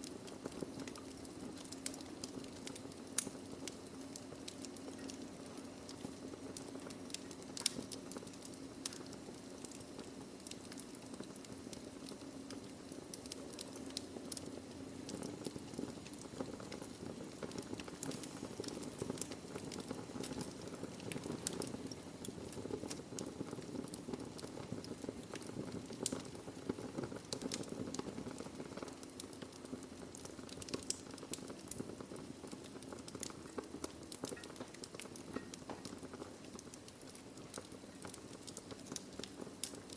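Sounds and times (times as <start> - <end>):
burning logs crackling: 0.0 - 39.9
low rush of fire: 0.0 - 39.9.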